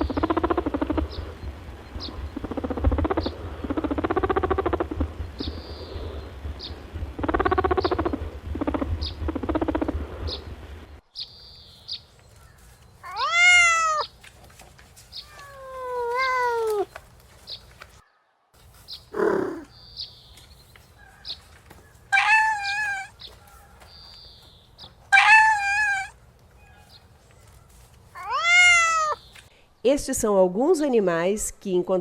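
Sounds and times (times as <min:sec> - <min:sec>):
wavering pulsing animal call: 0:00.0 - 0:10.4, 0:19.1 - 0:19.7, 0:22.1 - 0:23.2, 0:25.1 - 0:26.2
low hum: 0:00.0 - 0:11.1
cat meowing: 0:13.0 - 0:14.1, 0:15.3 - 0:16.9, 0:19.2 - 0:19.6, 0:22.1 - 0:23.1, 0:25.1 - 0:26.2, 0:28.2 - 0:29.2.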